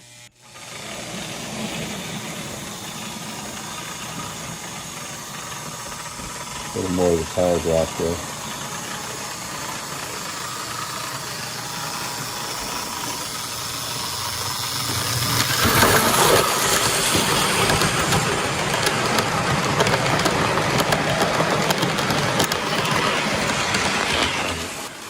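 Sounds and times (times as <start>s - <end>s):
model train rolling whir: 0.0s - 25.0s
wheels clicking over rail joints: 10.0s - 24.8s.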